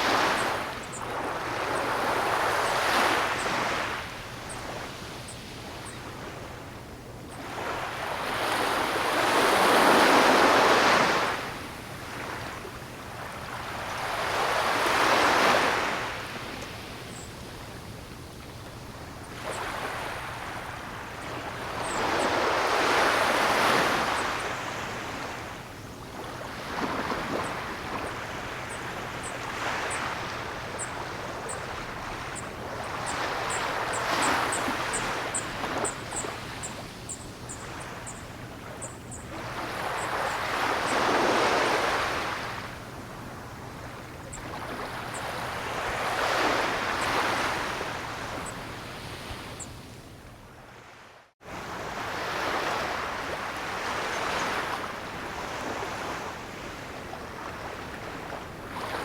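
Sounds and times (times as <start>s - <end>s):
ocean waves breaking: 0.0s - 5.0s, 19.0s - 49.6s.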